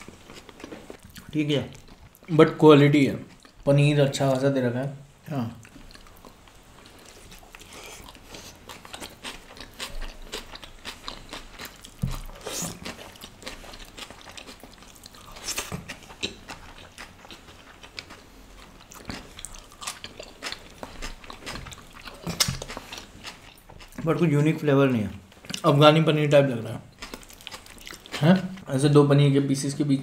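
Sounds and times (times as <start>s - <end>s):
mouth chewing and biting: 5.6s - 24.1s, 26.9s - 28.7s.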